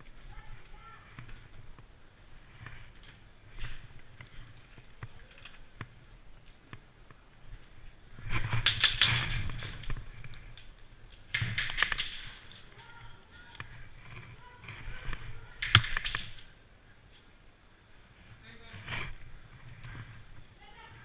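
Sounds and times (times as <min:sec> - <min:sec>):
airsoft gun bursts: 0:11.3 - 0:12.6, 0:15.6 - 0:16.5.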